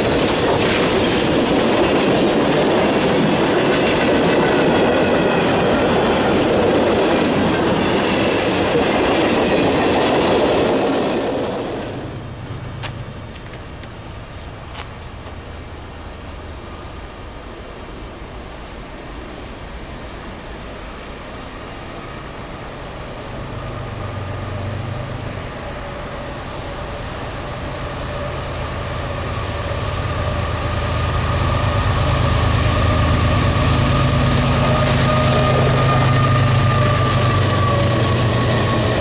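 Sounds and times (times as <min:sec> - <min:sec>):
diesel locomotive engine drone: 0:00.0 - 0:39.0
steady high tone: 0:25.4 - 0:39.0.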